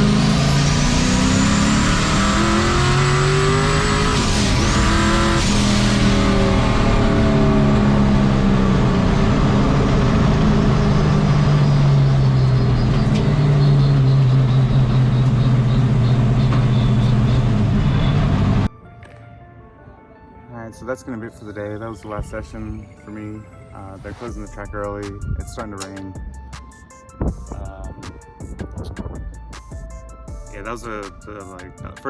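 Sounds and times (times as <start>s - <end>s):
turbo whine: 0.0s - 18.7s
turbocharged engine pulling hard: 0.0s - 18.7s.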